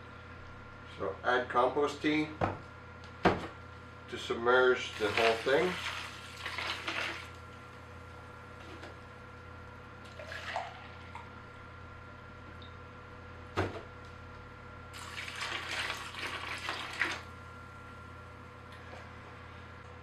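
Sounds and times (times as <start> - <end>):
liquid pouring and splashing: 4.9 - 7.4, 10.1 - 11.2, 15.0 - 17.3.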